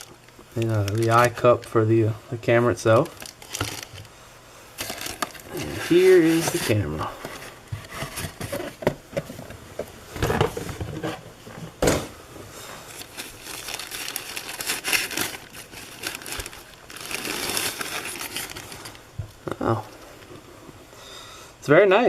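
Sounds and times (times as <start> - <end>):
wrapping crinkling and rustling: 0.0 - 9.6, 12.6 - 20.5.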